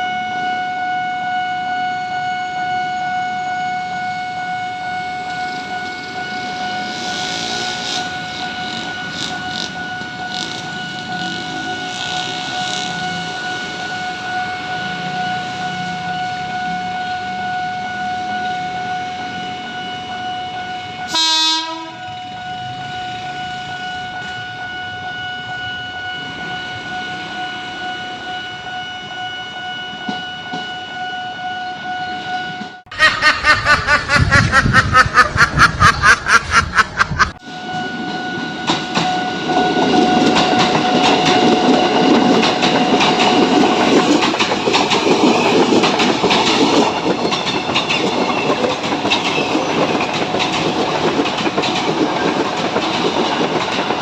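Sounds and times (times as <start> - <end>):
train horn blaring: 0.0 - 27.3
train wheels clickety-clack: 7.0 - 14.0, 38.6 - 54.0
steady high tone: 32.9 - 37.4.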